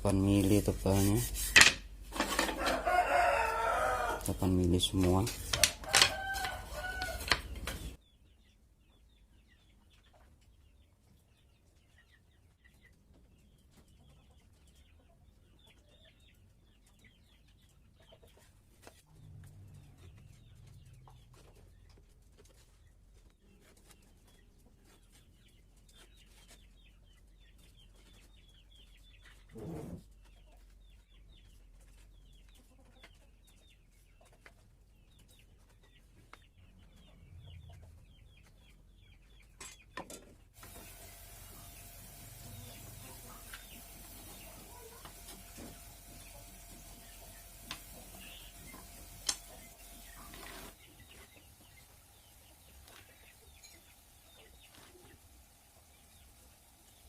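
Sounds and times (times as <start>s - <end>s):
faint chirping and clucking: 0.0s - 57.0s.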